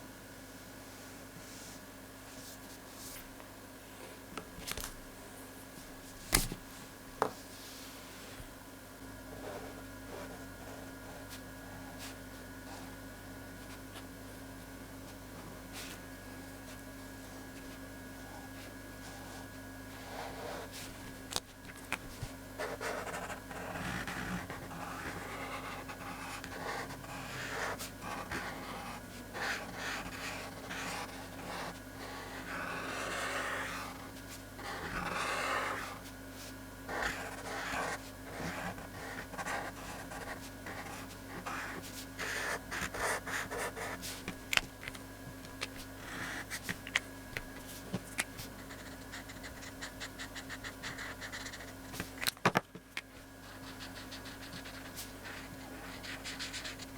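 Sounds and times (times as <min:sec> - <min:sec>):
faint steady hum: 0:00.0 - 0:56.9
pen scratching on paper: 0:22.6 - 0:36.0, 0:36.9 - 0:44.4, 0:45.7 - 0:46.7, 0:48.4 - 0:52.1, 0:53.4 - 0:56.9.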